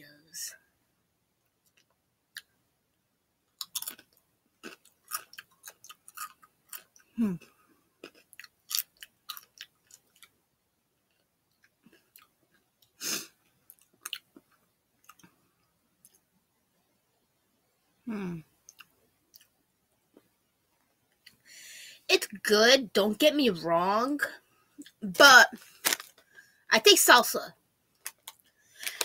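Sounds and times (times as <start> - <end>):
crunchy chewing of chip: 3.6 - 10.4, 13.7 - 15.3, 25.6 - 26.2, 28.0 - 29.0.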